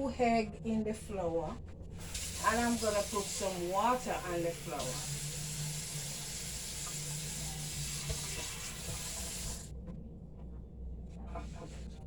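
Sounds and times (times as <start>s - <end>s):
water running from tap: 2.0s - 9.7s.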